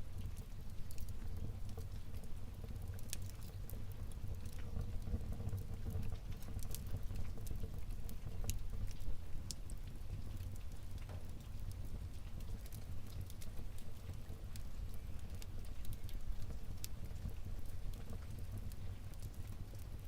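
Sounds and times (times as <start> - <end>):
wood fire burning: 0.0 - 20.0.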